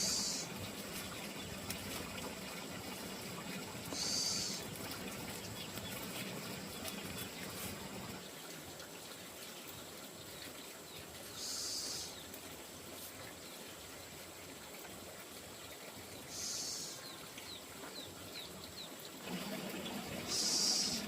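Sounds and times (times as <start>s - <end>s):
faint bird chirps: 0.0s - 0.5s, 3.9s - 4.6s, 11.3s - 12.2s, 16.2s - 17.2s, 20.3s - 21.0s.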